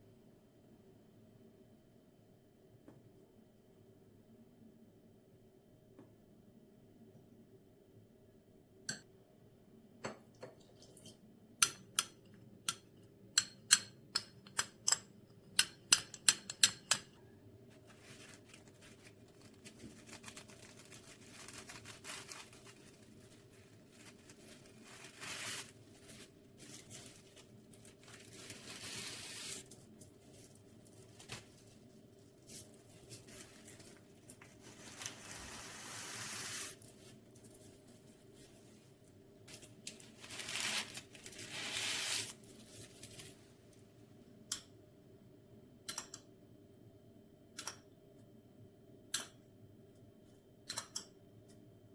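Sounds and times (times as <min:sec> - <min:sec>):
rustling and crinkling: 0:17.6 - 0:43.9.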